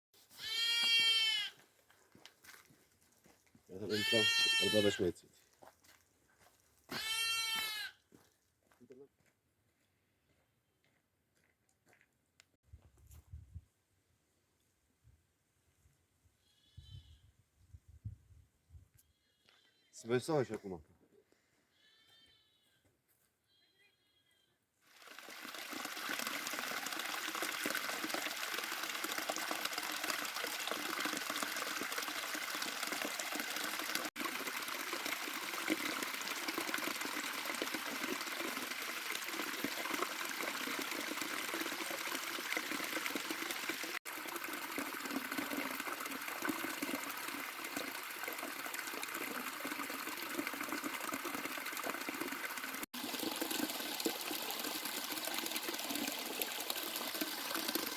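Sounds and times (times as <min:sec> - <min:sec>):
water rushing: 0:24.9 - 0:57.9.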